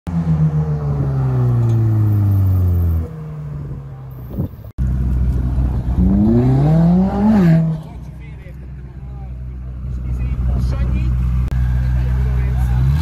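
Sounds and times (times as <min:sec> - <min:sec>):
car engine idling: 0:07.8 - 0:13.0.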